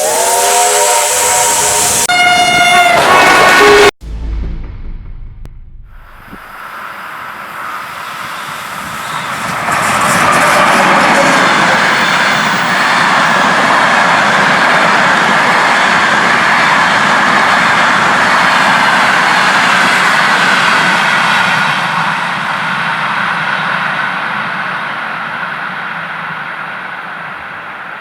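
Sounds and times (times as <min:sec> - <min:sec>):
train wheels rushing on rails: 0:05.9 - 0:28.0.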